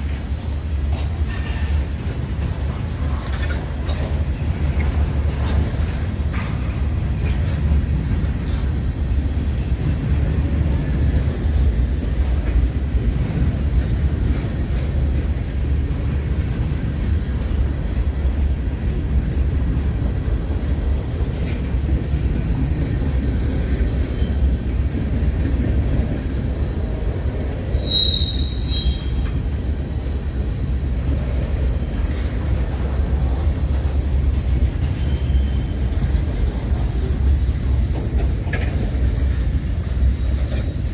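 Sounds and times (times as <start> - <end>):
railroad cars rumbling past: 0.0 - 40.9
train wheel squeal: 0.9 - 2.1, 23.8 - 24.6, 27.6 - 29.5, 34.5 - 36.3.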